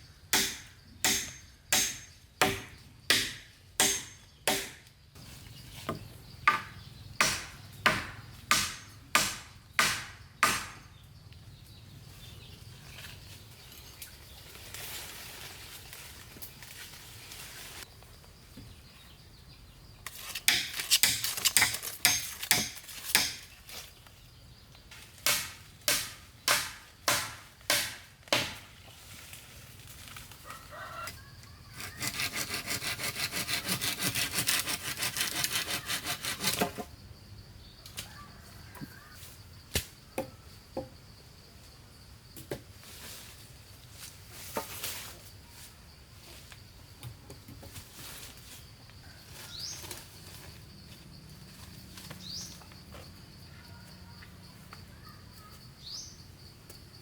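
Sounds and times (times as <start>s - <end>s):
hand saw cutting wood: 31.8s - 36.8s.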